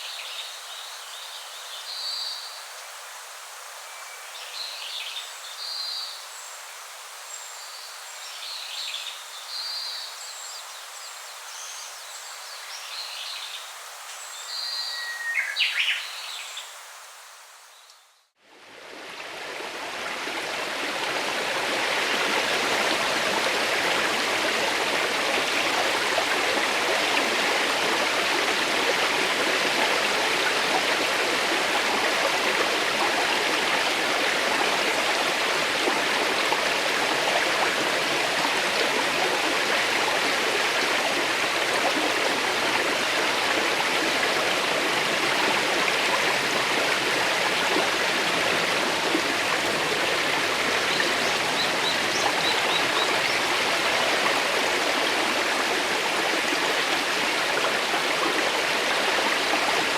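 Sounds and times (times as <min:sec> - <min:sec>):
running water rushing: 0:18.4 - 0:59.9.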